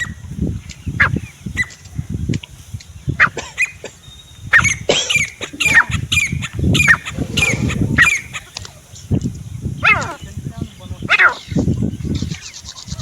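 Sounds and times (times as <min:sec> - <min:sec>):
low rustling: 0:06.5 - 0:08.6.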